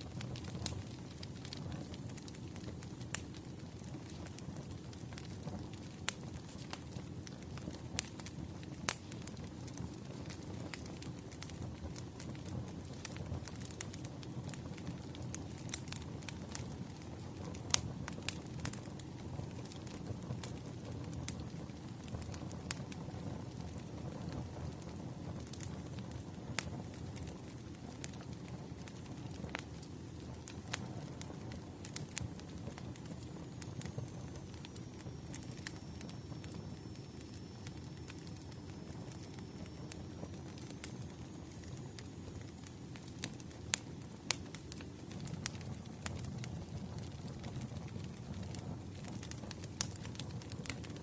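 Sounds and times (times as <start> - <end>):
fire low rumble: 0.0 - 51.0
wood fire crackling and popping: 0.0 - 51.0
faint high whistle: 34.0 - 40.3.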